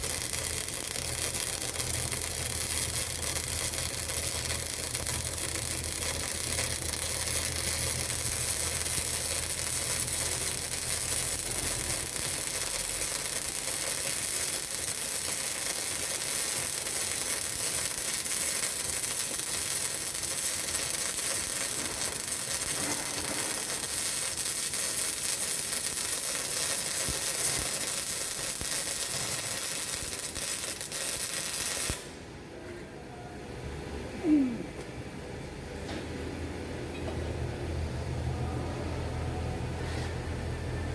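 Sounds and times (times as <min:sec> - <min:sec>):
welding arc crackling sizzle: 0:00.0 - 0:32.2
low hum: 0:32.5 - 0:40.9.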